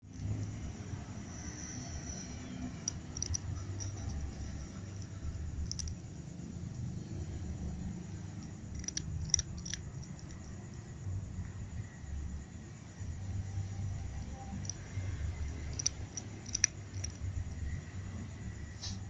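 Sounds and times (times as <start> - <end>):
cat eating: 0.0 - 11.8, 13.3 - 18.0
low background rumble: 0.0 - 18.8
sharp clicks: 2.7 - 6.0, 8.2 - 10.6, 14.5 - 17.7.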